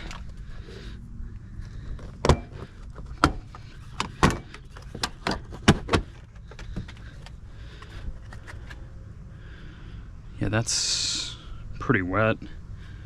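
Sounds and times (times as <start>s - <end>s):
trim panel clicks and knocks: 3.2s - 7.0s.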